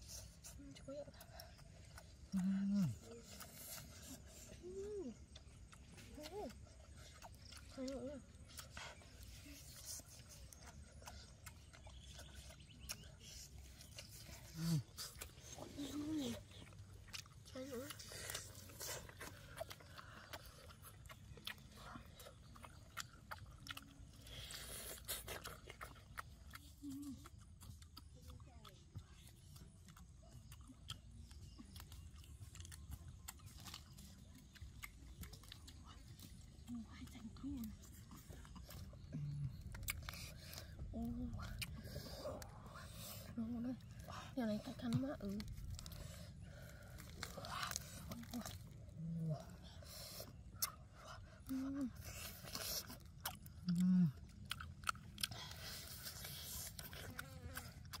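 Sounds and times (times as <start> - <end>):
chewing and biting food: 0.0 - 58.0
person humming mm: 2.3 - 3.0
sharp mouth clicks: 50.2 - 50.8.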